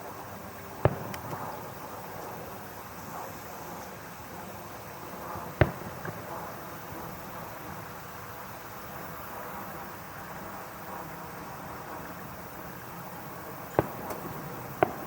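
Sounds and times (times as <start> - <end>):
steady background hiss: 0.0 - 15.0
fireworks bangs: 0.7 - 2.5, 5.3 - 7.8, 13.6 - 15.0
fireworks pops: 0.7 - 2.5, 5.4 - 7.2, 13.6 - 15.0.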